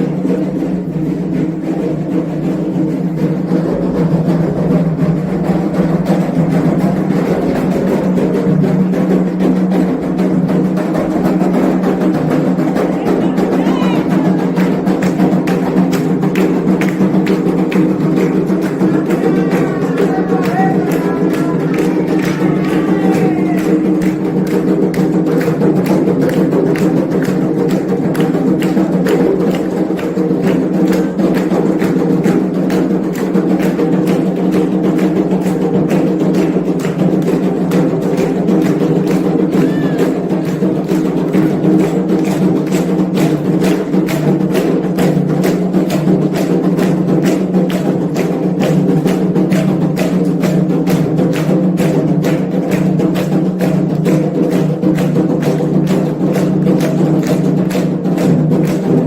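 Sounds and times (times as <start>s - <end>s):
fast hand drumming: 0.0s - 59.0s
voices singing: 12.8s - 14.8s, 18.7s - 24.0s.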